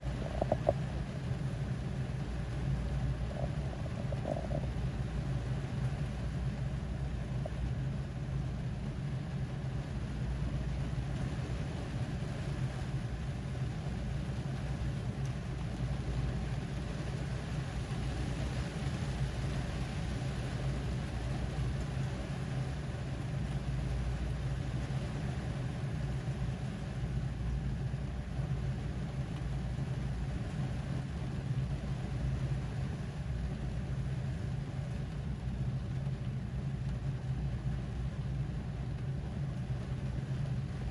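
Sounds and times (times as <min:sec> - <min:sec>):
low rumble: 0:00.0 - 0:07.7
rain on a car roof: 0:00.0 - 0:40.9.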